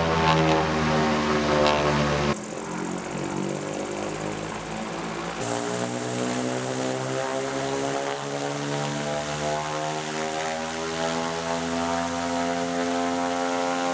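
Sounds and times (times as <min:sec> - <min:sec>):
electric propeller drone: 0:00.0 - 0:13.9.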